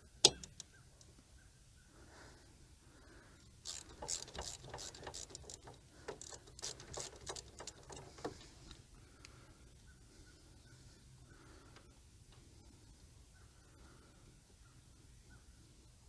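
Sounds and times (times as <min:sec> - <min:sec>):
ratchet wrench clicking: 0:00.2 - 0:00.7, 0:03.6 - 0:08.5.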